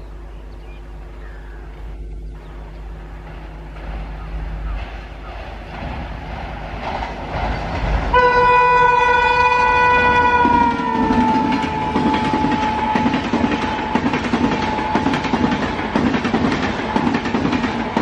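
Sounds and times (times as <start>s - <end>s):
train wheels clattering: 2.4s - 18.0s
train horn blast: 8.1s - 16.0s.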